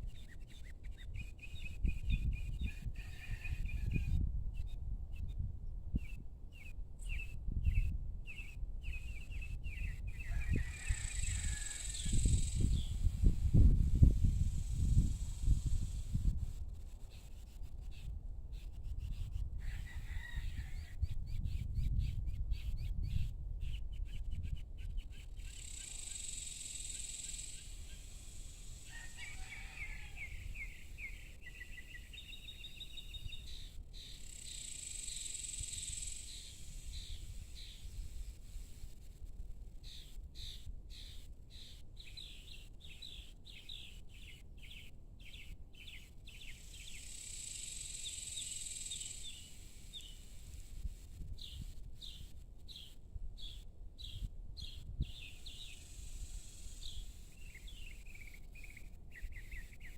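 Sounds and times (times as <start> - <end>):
small birds chirping: 21.3 - 38.5, 39.8 - 50.5, 51.4 - 59.9.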